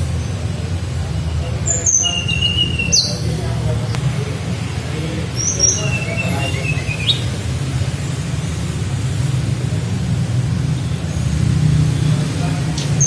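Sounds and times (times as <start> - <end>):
bird whistling and trilling: 1.7 - 3.3, 5.4 - 7.3.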